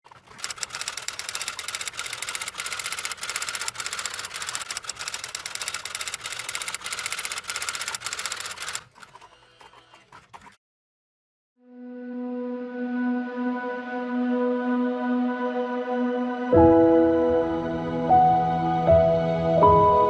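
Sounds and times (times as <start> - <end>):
faint scattered clicks: 0.1 - 10.6
machine clicking and whining: 0.1 - 10.6.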